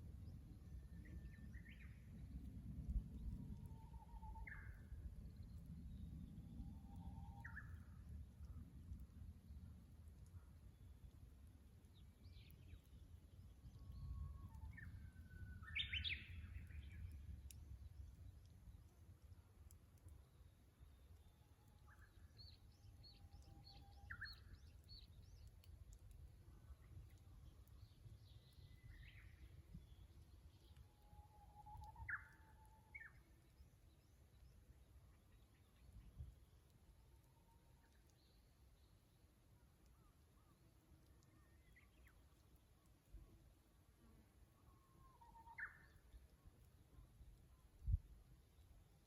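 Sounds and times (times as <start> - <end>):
bird singing whistled notes: 3.6 - 8.0, 13.7 - 17.2, 21.8 - 25.5, 27.8 - 33.7, 44.7 - 46.2.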